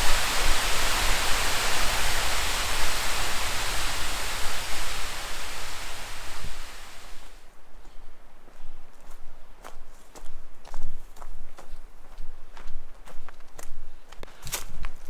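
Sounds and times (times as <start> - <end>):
flowing water rushing: 0.0 - 7.4.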